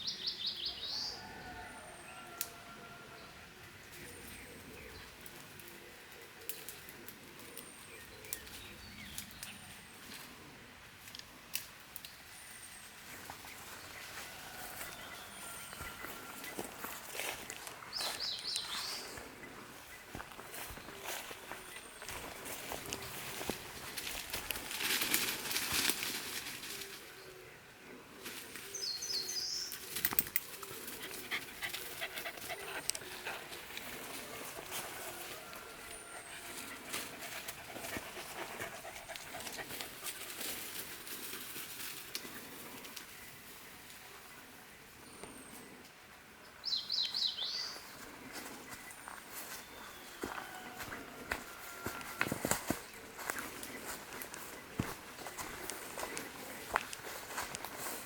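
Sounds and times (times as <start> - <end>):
footsteps rustling on trail: 12.1 - 27.4, 28.2 - 44.3, 46.7 - 58.0
dog panting: 30.9 - 33.9, 36.2 - 40.0.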